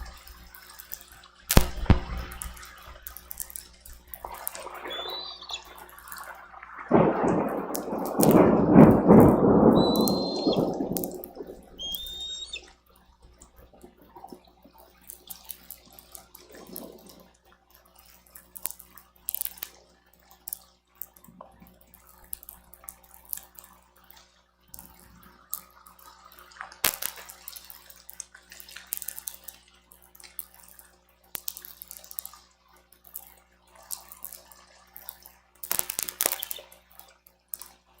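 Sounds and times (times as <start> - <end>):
rain and wind on microphone: 0.0 - 12.6.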